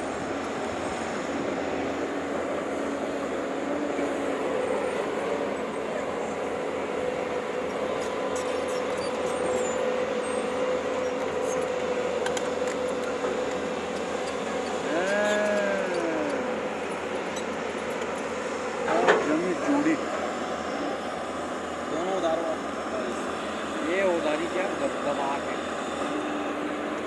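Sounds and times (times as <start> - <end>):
heavy construction machinery running: 0.0 - 27.0
steady whine: 10.8 - 27.0.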